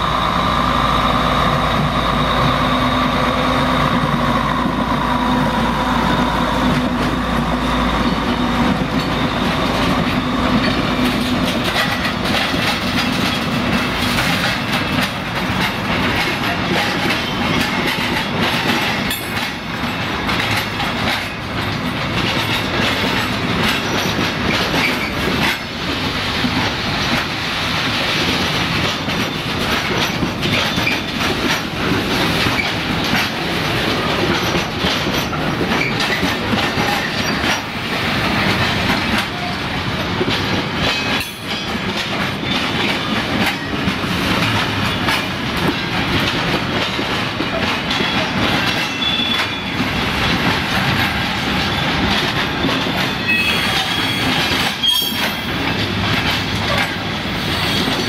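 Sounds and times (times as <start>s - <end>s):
diesel locomotive engines running: 0.0s - 58.0s
wheels clattering over rail joints: 8.0s - 58.0s
wheel squeal: 48.9s - 49.7s, 53.1s - 55.6s, 57.4s - 58.0s.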